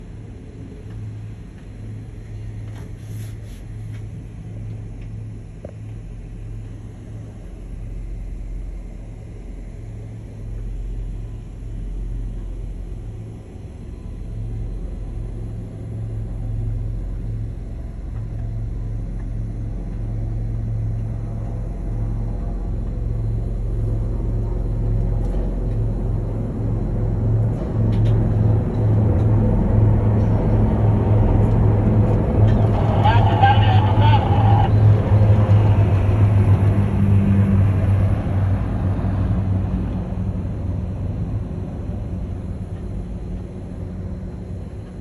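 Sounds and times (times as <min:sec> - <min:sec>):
car rumbling in motion: 0:19.4 - 0:45.0.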